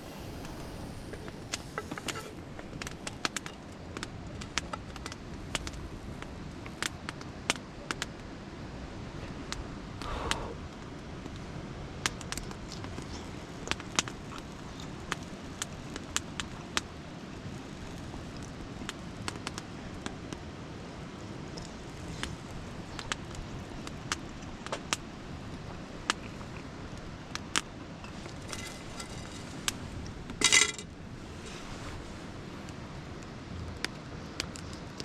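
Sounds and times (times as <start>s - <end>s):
wood fire crackling and popping: 0.0s - 8.2s, 10.8s - 31.4s
metallic clatter: 28.0s - 29.8s, 30.4s - 30.9s.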